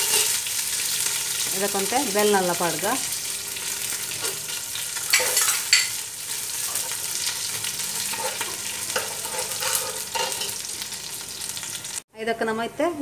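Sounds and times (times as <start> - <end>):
spatula stirring and scraping: 0.0 - 1.1, 3.6 - 11.2
leaves sizzling in hot oil: 0.0 - 12.0.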